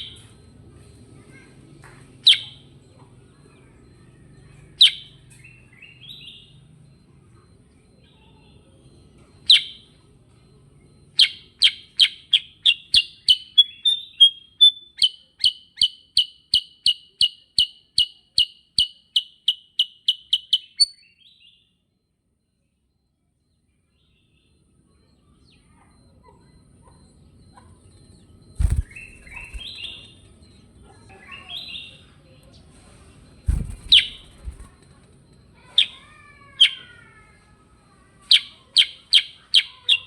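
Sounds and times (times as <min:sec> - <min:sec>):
bulbul singing: 0:27.0 - 0:30.6, 0:33.4 - 0:34.8.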